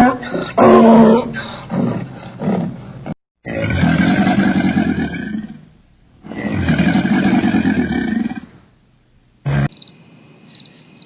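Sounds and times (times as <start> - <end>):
large animal roaring: 0.0 - 8.6.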